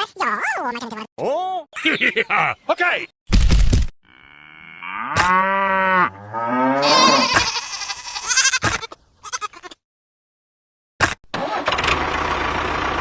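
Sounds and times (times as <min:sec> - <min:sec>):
sheep-like bleat: 0:06.8 - 0:09.8.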